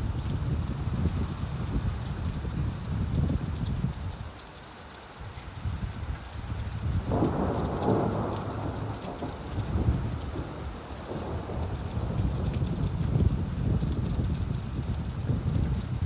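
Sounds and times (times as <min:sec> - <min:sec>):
steady rain: 0:00.0 - 0:16.0
thunder rolling: 0:07.0 - 0:16.0.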